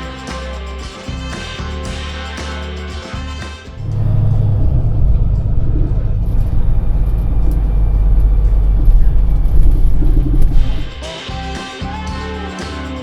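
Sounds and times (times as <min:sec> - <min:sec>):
vehicle engine rumbling: 0:03.8 - 0:11.1.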